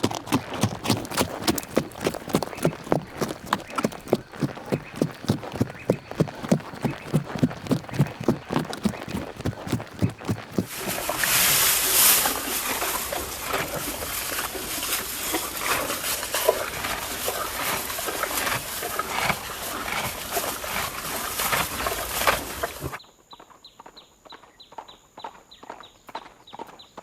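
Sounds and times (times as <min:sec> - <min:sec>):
rough horse sounds with knocks: 0:00.0 - 0:11.4
horse hoofbeats: 0:00.0 - 0:11.7.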